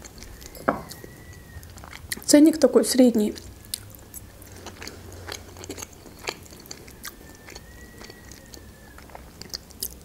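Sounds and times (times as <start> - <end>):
person chewing food: 0.0 - 2.3, 3.4 - 10.0
faint thin high tone: 0.4 - 1.5.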